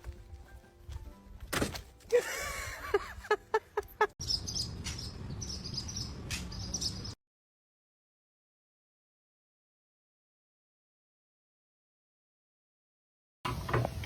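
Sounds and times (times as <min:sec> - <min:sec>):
outdoor background noise: 0:00.0 - 0:07.2, 0:13.5 - 0:14.0
birds chirping: 0:03.5 - 0:07.2.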